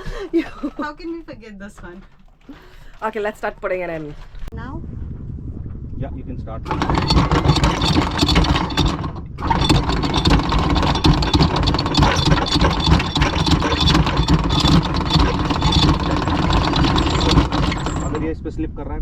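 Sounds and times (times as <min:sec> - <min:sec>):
motor running with a rattle: 0:06.7 - 0:18.4.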